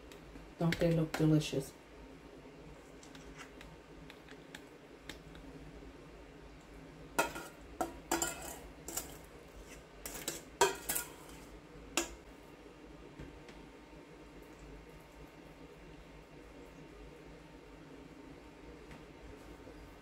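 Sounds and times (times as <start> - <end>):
utensils scraping dishware: 7.2 - 11.4.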